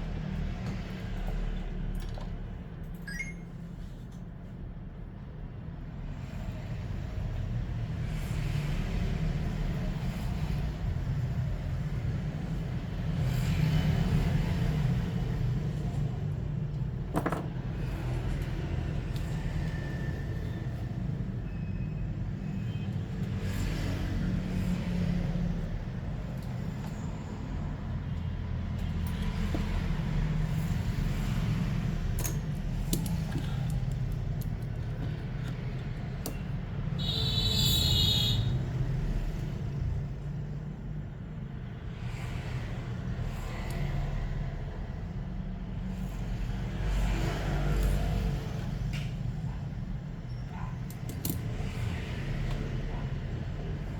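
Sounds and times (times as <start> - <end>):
road traffic rumble: 6.0 - 53.9.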